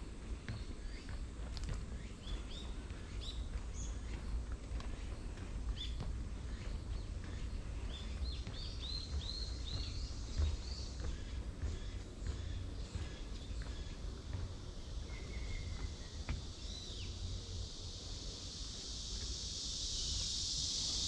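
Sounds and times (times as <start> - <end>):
small birds chirping: 0.0 - 21.0
steady low rumble: 0.0 - 21.0.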